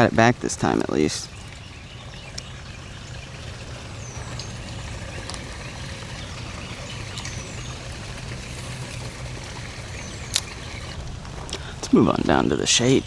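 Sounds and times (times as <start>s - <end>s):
bird chirping: 0.0s - 13.0s
steady low rumble: 1.3s - 13.0s
faint clicks: 4.2s - 11.9s.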